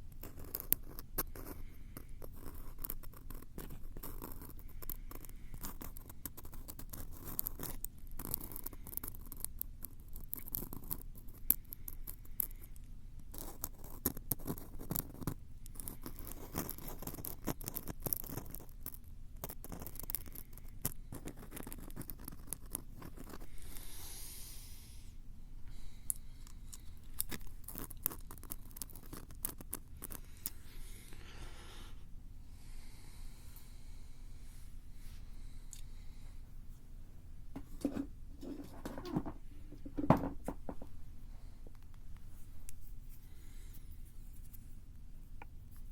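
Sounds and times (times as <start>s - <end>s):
scratching and tapping on microphone: 37.5s - 41.0s.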